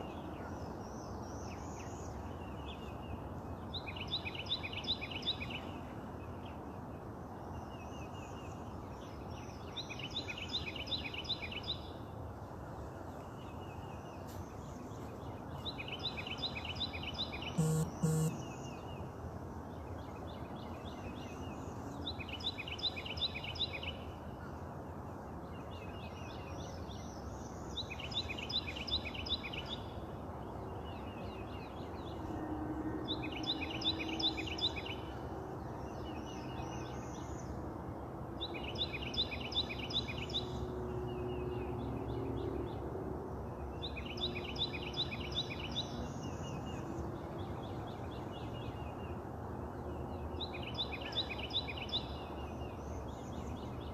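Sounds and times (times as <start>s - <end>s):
songbird singing: 13.1s - 24.1s, 33.0s - 37.6s, 38.4s - 42.9s, 43.6s - 53.9s.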